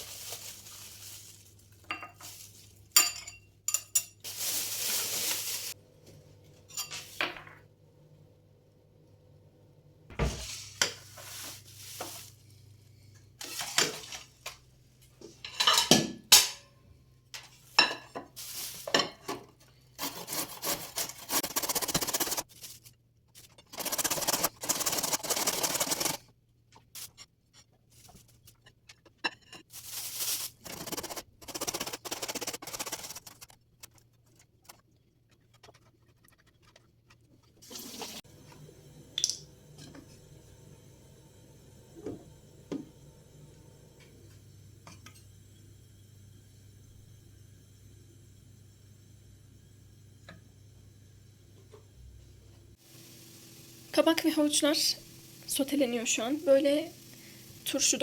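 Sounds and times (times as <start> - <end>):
dishes and cutlery clinking: 1.8 - 4.3, 6.7 - 7.6, 15.3 - 16.7.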